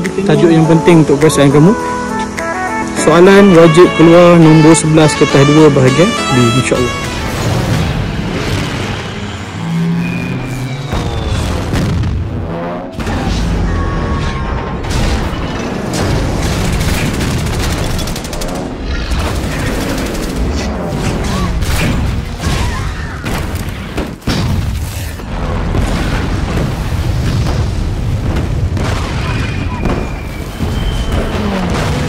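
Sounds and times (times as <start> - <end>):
film score music: 0.0 - 28.9
explosions: 10.8 - 32.0.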